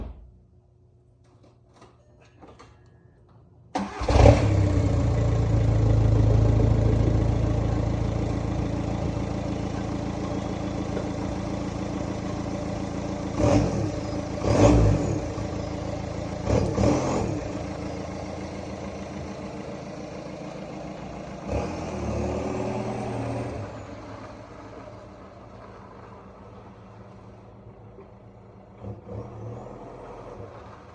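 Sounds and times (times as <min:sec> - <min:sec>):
diesel engine starting and idling: 0:03.7 - 0:30.9
engine revving: 0:03.8 - 0:24.3, 0:28.7 - 0:30.9.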